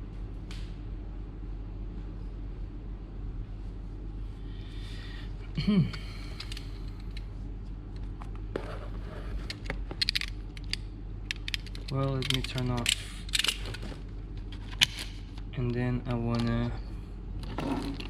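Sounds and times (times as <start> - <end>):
steady low hum: 0.0 - 18.0
objects clattering on a workbench: 17.4 - 18.0.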